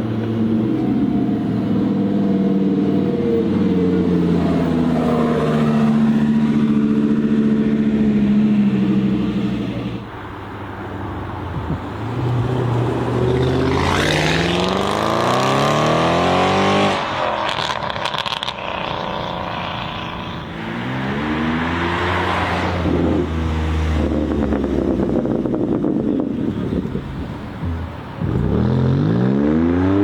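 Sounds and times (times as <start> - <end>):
supercar engine accelerating: 12.0 - 27.0, 27.7 - 30.0.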